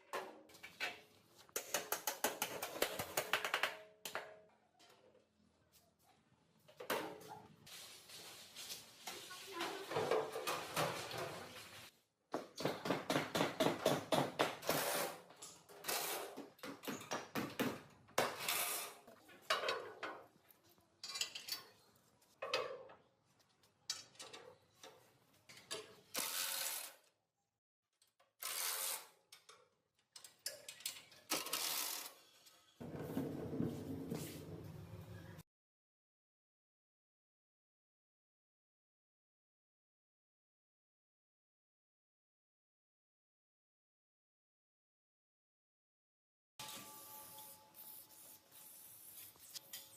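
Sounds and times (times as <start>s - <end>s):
metal tools clanking and scraping: 21.0s - 21.9s.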